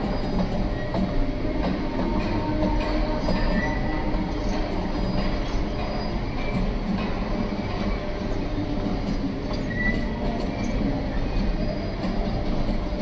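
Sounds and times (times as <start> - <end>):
wheels rumbling on track: 0.0 - 13.0
high wheel squeals: 2.2 - 6.7, 9.5 - 12.0.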